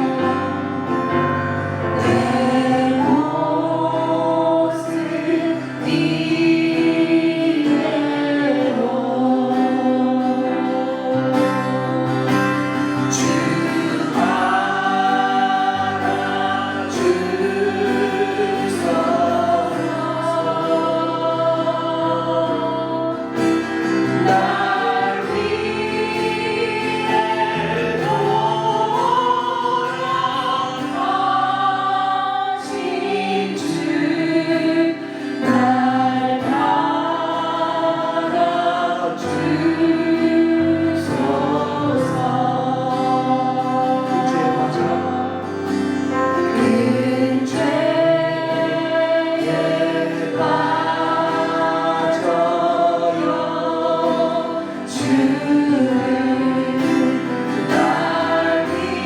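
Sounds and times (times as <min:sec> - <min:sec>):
instrumental accompaniment: 0:00.0 - 0:41.6
congregation singing a hymn: 0:00.0 - 0:59.0.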